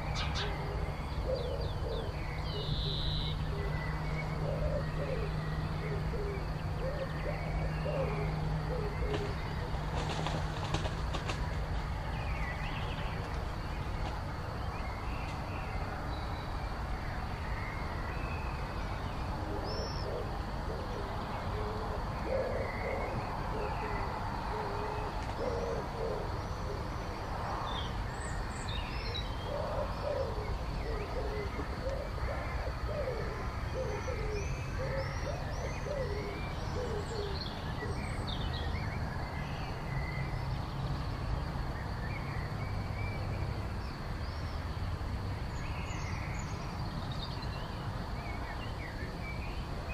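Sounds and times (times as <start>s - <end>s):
birds chirping and whistling: 0.0s - 8.1s.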